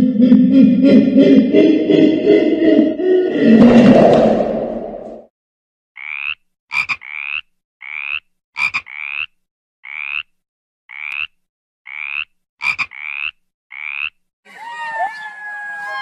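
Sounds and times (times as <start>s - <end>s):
frog calling: 6.0s - 10.3s, 10.9s - 14.2s.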